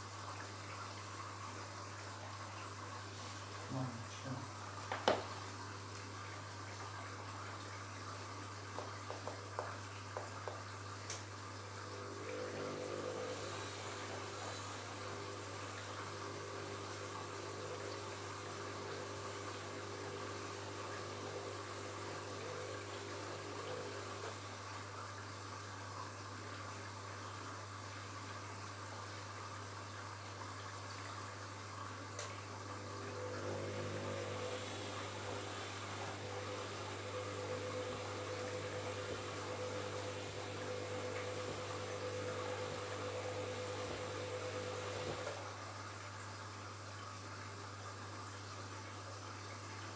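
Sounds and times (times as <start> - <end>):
pitched pump hum: 0.0 - 49.9
washing machine running: 0.0 - 49.9
water flowing: 0.0 - 49.9.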